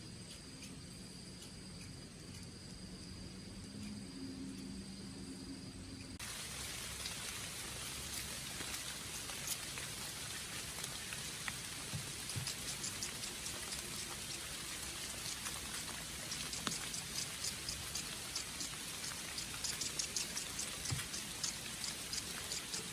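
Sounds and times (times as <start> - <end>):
raindrops tapping close by: 6.2 - 22.9
steady rain falling: 6.2 - 22.9.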